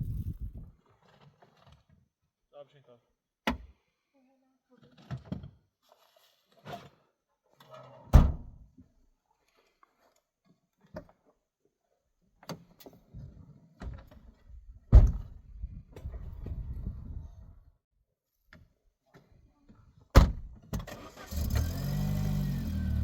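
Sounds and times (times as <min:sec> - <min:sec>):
car doors shutting: 0:20.2 - 0:23.0.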